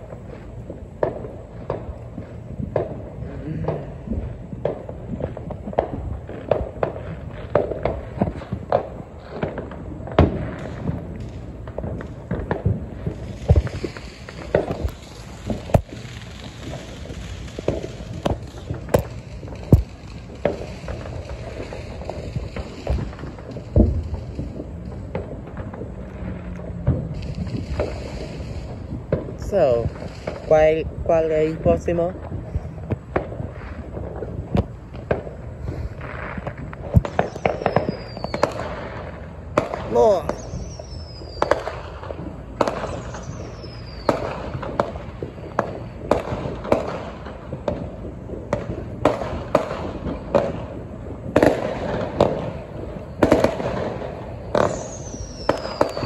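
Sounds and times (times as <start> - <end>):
fireworks bangs and thuds: 0.0 - 56.0
sharp firework cracks: 0.0 - 56.0
firework whistle falling in pitch: 54.6 - 56.0.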